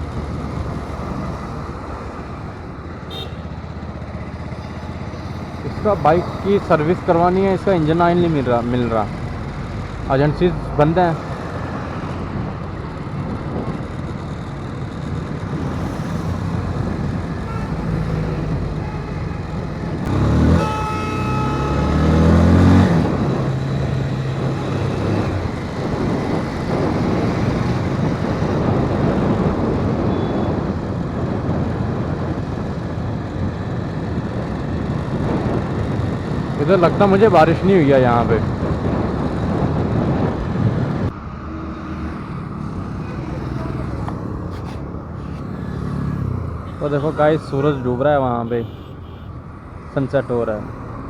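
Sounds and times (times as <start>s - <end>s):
motorbike engine: 0.0s - 51.0s
traffic noise: 0.0s - 51.0s
vehicle horn: 3.0s - 3.6s, 17.4s - 23.5s, 30.1s - 30.6s, 46.8s - 49.4s
wind noise: 9.1s - 47.8s.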